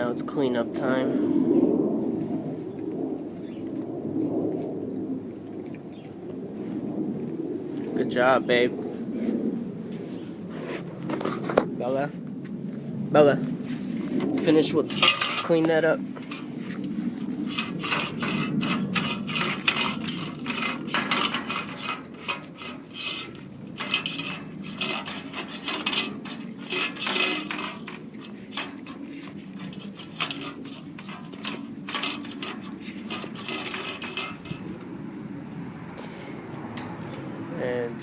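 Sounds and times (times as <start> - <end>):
tongue scraping feeding surface: 16.2 - 34.9.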